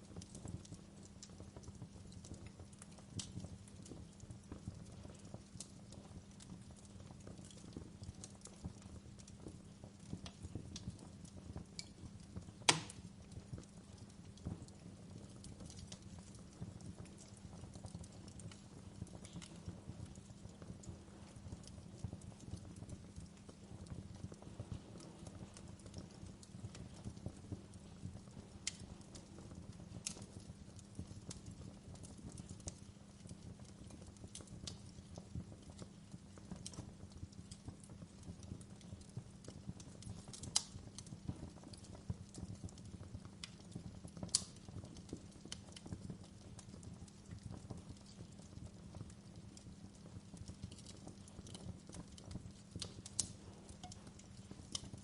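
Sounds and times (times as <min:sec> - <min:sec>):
campfire rumble: 0:00.0 - 0:55.0
fire crackling and popping: 0:00.0 - 0:55.0.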